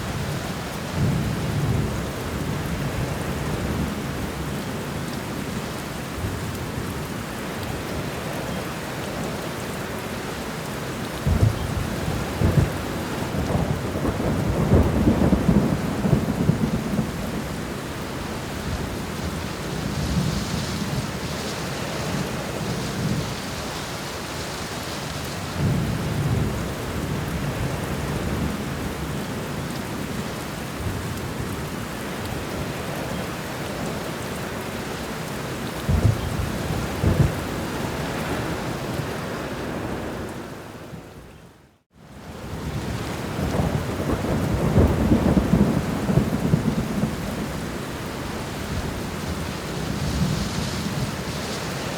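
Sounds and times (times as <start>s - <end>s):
steady rain: 0.0s - 51.9s
thunder rumbling: 11.2s - 17.7s, 35.8s - 39.0s, 42.6s - 51.9s.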